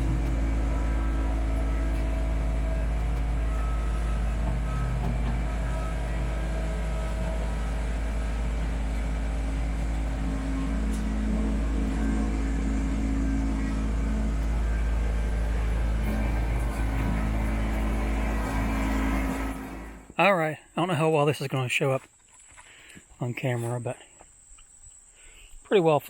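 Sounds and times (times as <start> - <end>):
tractor diesel engine running: 0.0 - 20.2.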